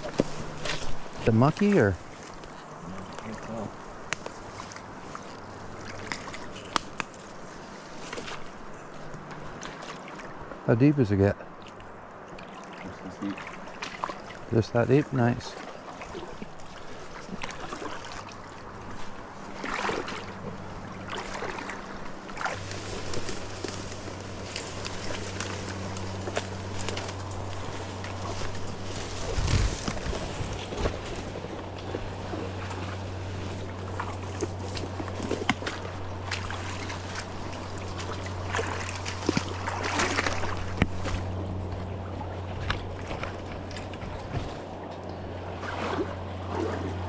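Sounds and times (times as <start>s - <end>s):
water sloshing and splashing: 0.0s - 47.0s
low motor hum: 15.6s - 47.0s.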